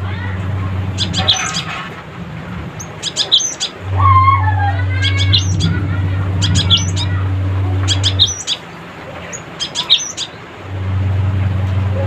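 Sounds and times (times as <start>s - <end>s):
steady low hum: 0.0s - 12.0s
bird chattering with whistles: 0.8s - 1.9s, 2.8s - 10.4s.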